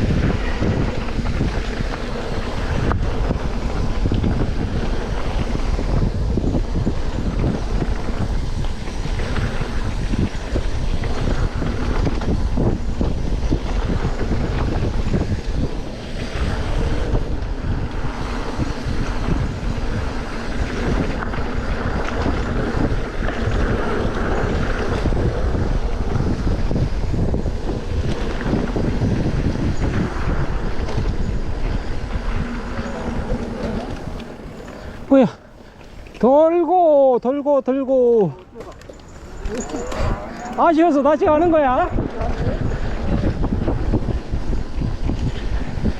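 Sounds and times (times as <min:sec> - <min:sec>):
wind buffeting microphone: 0:00.0 - 0:45.9
dense crackling: 0:38.3 - 0:41.9.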